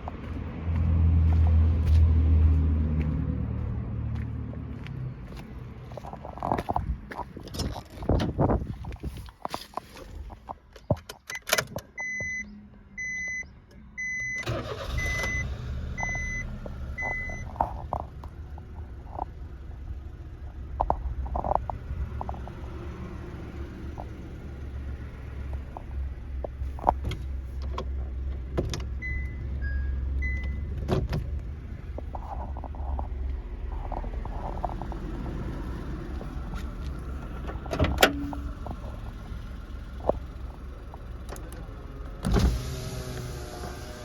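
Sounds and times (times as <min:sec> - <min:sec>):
car engine starting and idling: 0:11.1 - 0:44.0
car warning chime beeping: 0:11.3 - 0:17.6, 0:29.0 - 0:30.7.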